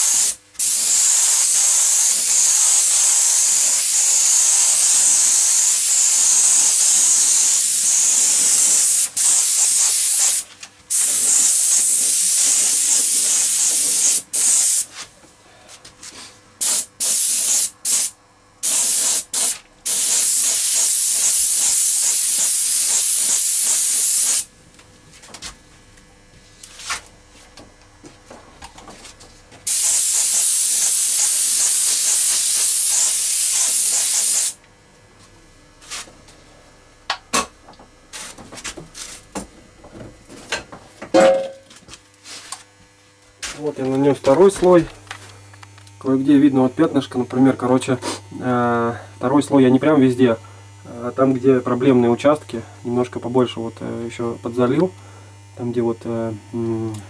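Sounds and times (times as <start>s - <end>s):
paint spray gun hissing: 0.0s - 14.9s, 16.6s - 24.5s, 29.6s - 34.6s.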